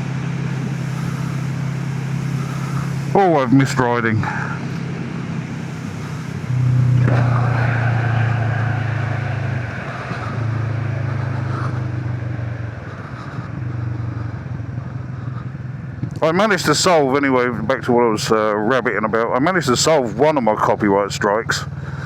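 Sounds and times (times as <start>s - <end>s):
motorcycle engine under throttle: 0.0s - 7.8s, 8.5s - 16.2s.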